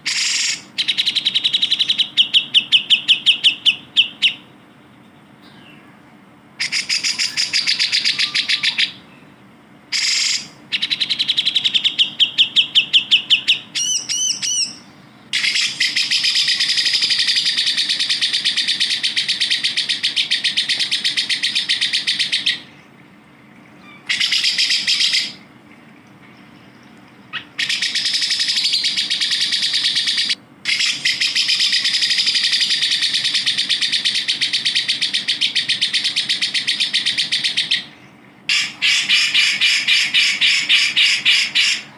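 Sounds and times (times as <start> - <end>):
bulbul rapid chattering song: 0.0 - 4.6, 6.6 - 9.0, 9.9 - 22.7, 24.0 - 25.4, 27.3 - 37.9, 38.5 - 41.9
wavering whistled bird phrase: 6.6 - 9.0.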